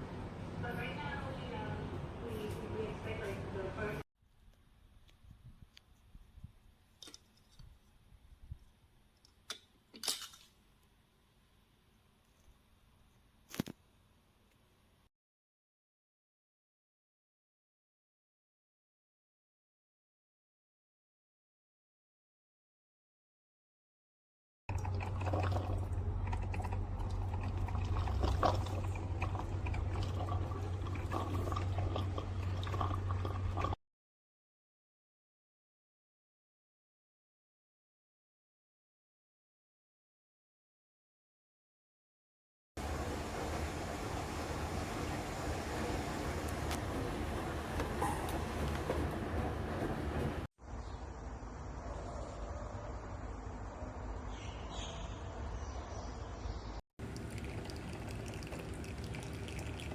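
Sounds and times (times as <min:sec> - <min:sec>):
coffee sputtering and crackling: 0:24.7 - 0:33.8, 0:57.0 - 0:59.9
pump hum: 0:24.7 - 0:33.8, 0:57.0 - 0:59.9.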